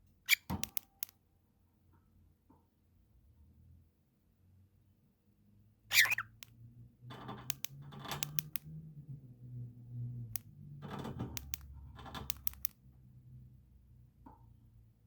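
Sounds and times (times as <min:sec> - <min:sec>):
sharp clicks and rustling: 0:07.1 - 0:08.7, 0:10.8 - 0:12.8.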